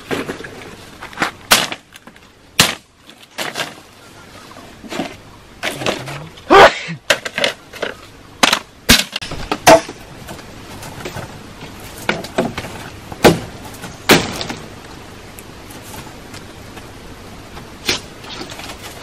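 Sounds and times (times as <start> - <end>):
wood knocking and cracking: 7.1 - 14.7.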